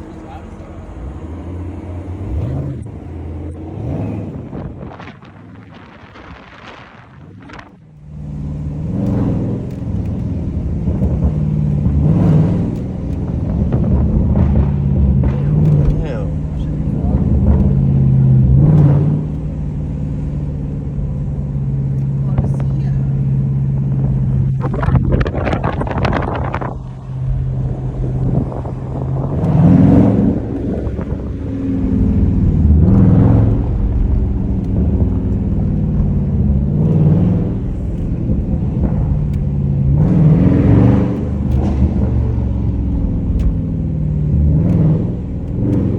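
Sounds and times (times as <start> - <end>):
car engine rumbling: 0.0 - 45.9
sharp clicks: 8.9 - 13.5.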